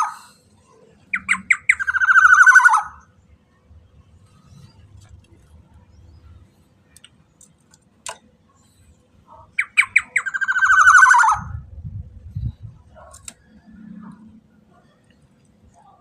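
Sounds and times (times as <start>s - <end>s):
bird squawk call: 1.1s - 3.1s, 9.4s - 11.6s
faint low rumble: 11.4s - 16.0s.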